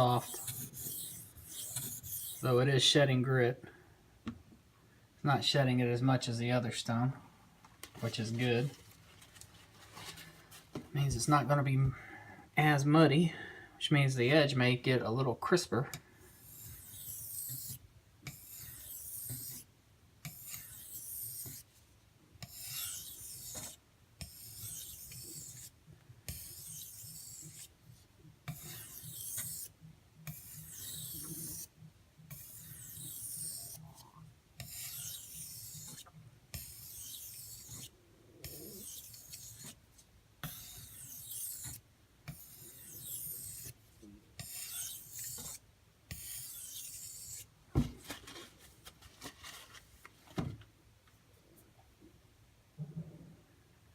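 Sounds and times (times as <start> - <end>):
knife scraping on sharpening stone: 0.0 - 2.5, 16.3 - 21.6, 22.4 - 25.7, 26.3 - 27.7, 28.5 - 29.7, 30.3 - 31.7, 32.3 - 34.0, 34.6 - 39.8, 40.4 - 43.8, 44.4 - 47.5.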